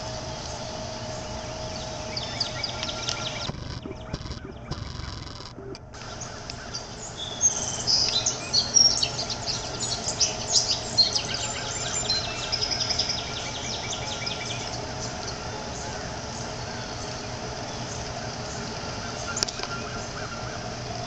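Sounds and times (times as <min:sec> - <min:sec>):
small bird chirping: 0:01.1 - 0:14.8.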